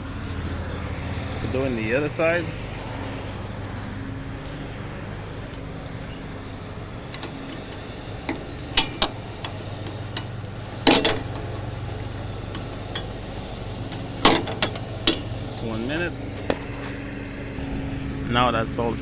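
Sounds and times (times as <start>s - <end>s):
steady low hum: 0.0s - 19.0s
spanner clinking on metal bolts: 5.5s - 17.1s.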